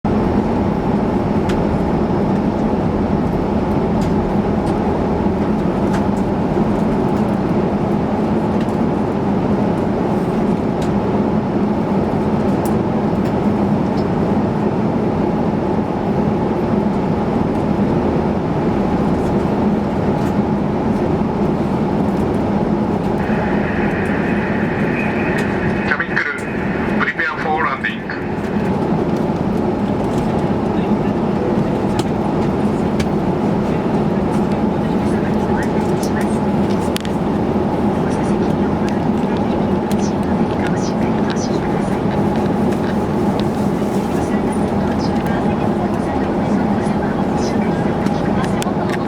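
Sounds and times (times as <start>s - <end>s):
airliner cabin noise: 0.1s - 49.0s
steady high tone: 23.2s - 29.2s.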